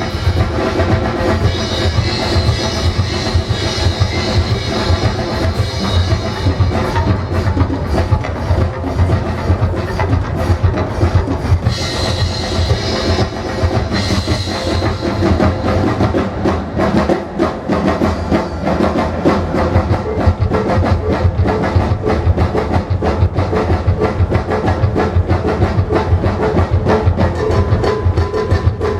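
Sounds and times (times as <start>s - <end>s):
percussion ensemble drumming: 0.0s - 28.9s.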